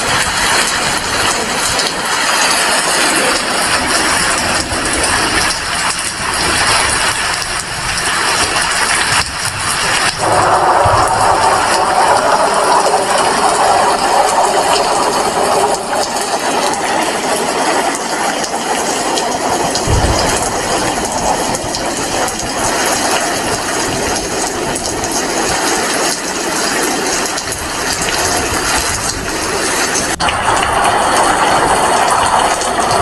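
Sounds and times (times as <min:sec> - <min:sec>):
steady rain: 0:00.0 - 0:33.0
low thump: 0:19.8 - 0:21.6.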